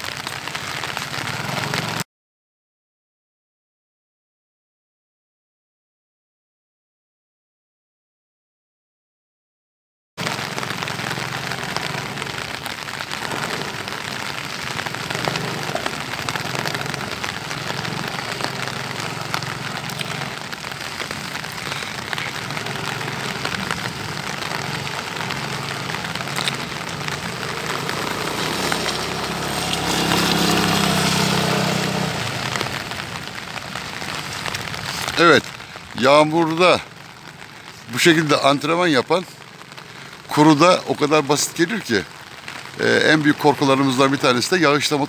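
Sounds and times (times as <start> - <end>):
heavy rain on wet pavement: 0.0 - 2.1, 10.2 - 45.0
scooter engine humming: 10.2 - 35.2.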